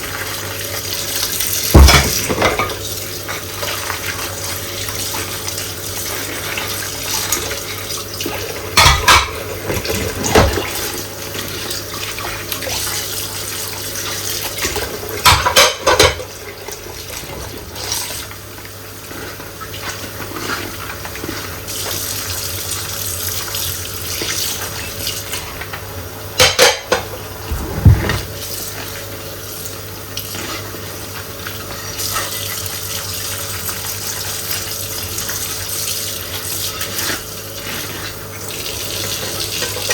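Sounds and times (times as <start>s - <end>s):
tap water running into sink: 0.1s - 18.8s
dishes knocking and clinking: 1.8s - 2.8s, 8.8s - 9.4s, 15.2s - 16.2s, 26.4s - 28.3s.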